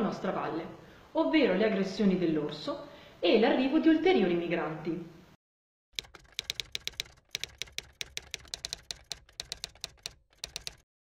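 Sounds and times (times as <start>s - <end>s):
typewriter key clacks: 6.0s - 10.8s.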